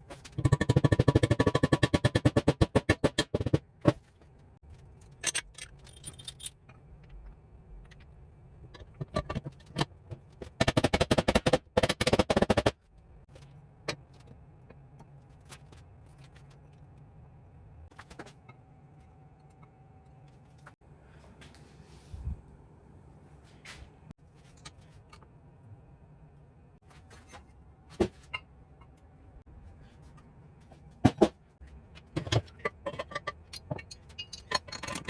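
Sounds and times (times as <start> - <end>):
metal tools clinking and clicking: 4.9 - 6.8, 32.2 - 35.0.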